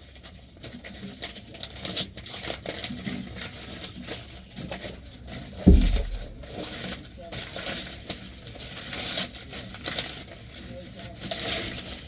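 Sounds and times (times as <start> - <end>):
heavy low thump: 5.7 - 6.5.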